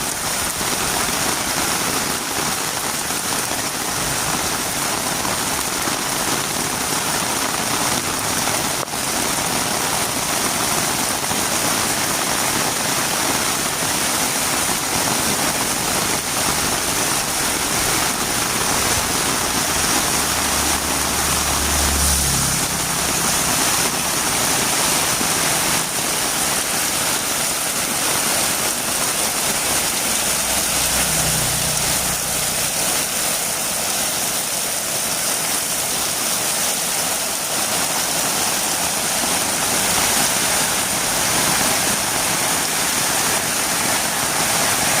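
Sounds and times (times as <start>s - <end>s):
heavy rain falling: 0.0s - 45.0s
low engine hum: 19.4s - 24.6s.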